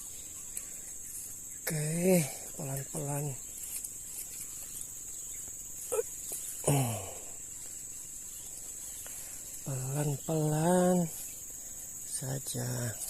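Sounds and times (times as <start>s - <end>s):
insect chorus buzzing: 0.0s - 13.0s
man grunting: 5.9s - 7.4s.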